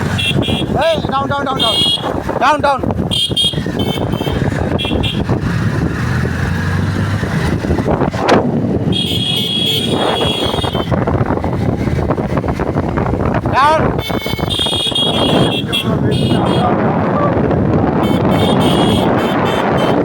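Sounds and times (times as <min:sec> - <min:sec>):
vehicle horns honking: 0:00.0 - 0:02.2, 0:03.0 - 0:05.3, 0:08.8 - 0:11.0, 0:13.9 - 0:16.8, 0:17.9 - 0:20.0
traffic rumble: 0:00.0 - 0:20.0
vehicle passing: 0:00.0 - 0:20.0.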